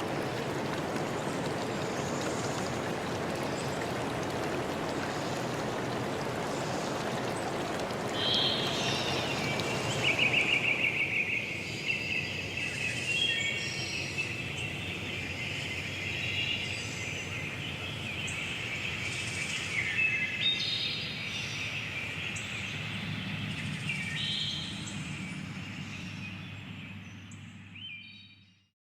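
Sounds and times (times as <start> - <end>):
stream rushing: 0.0 - 20.6
birds singing: 0.3 - 28.5.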